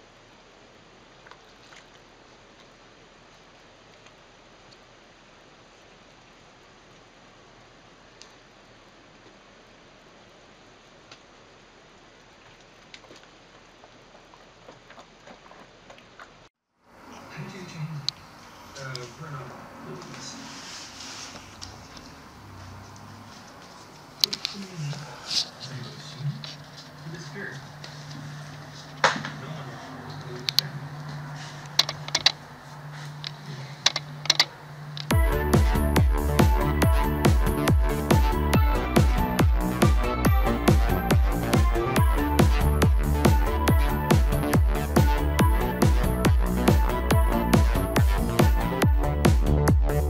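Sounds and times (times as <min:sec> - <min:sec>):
low steady hum: 0:00.0 - 0:50.0
steady hiss: 0:16.9 - 0:43.4.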